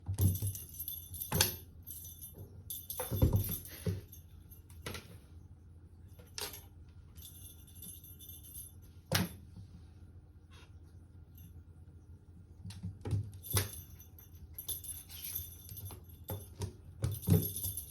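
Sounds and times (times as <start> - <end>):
small bell jingling: 0.2 - 4.8, 6.1 - 9.0, 13.3 - 17.9.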